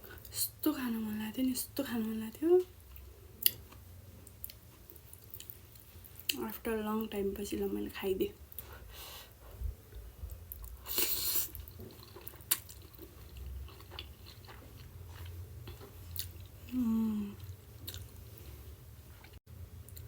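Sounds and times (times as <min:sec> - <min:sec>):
person chewing and biting: 0:10.5 - 0:16.6, 0:17.6 - 0:18.2
person humming: 0:16.6 - 0:17.4.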